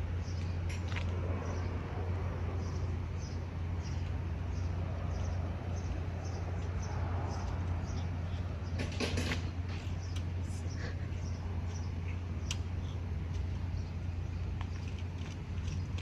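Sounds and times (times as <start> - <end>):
low outdoor rumble: 0.0 - 16.0
light clicks: 12.4 - 13.6.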